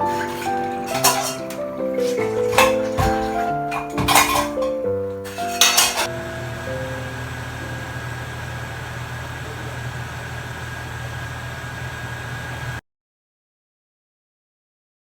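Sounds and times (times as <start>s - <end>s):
low machine hum: 6.1s - 12.8s.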